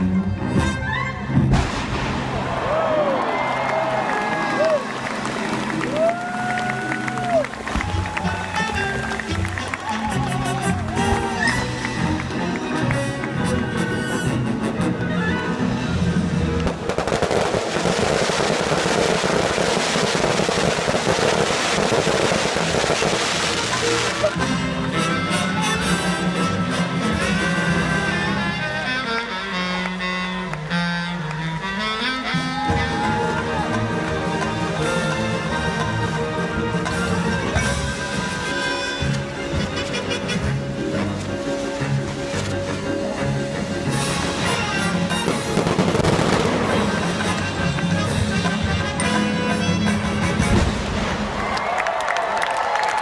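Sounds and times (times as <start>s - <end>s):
orchestral strings: 0.0s - 19.6s, 20.2s - 51.5s
brass playing: 8.1s - 17.6s, 18.6s - 51.0s
fireworks bursting: 16.6s - 24.6s, 44.1s - 48.4s, 50.4s - 51.5s.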